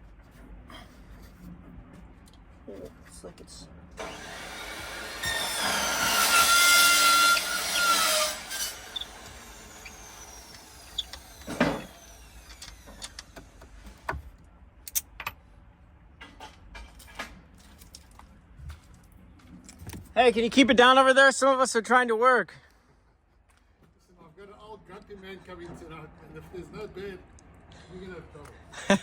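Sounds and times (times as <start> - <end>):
power tool whining: 4.0 - 13.6.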